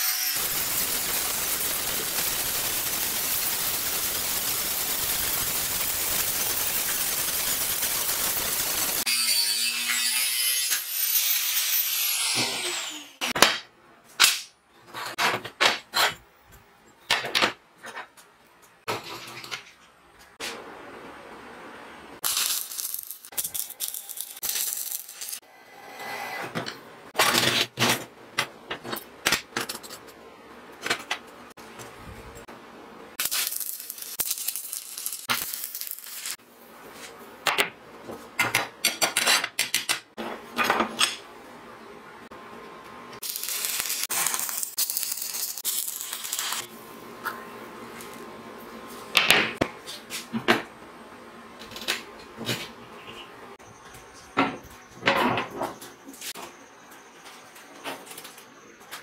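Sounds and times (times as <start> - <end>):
welding arc crackle: 0.0 - 9.5, 22.2 - 25.4, 33.2 - 36.4, 43.2 - 46.7
angle grinder cutting steel: 0.0 - 13.3.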